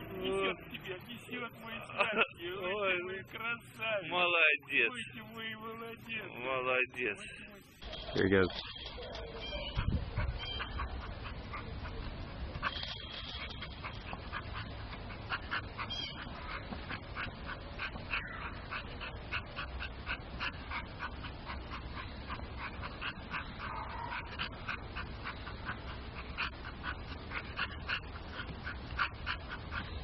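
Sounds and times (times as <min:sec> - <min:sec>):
dog whimpering and yipping: 0:08.9 - 0:12.0, 0:12.6 - 0:30.0.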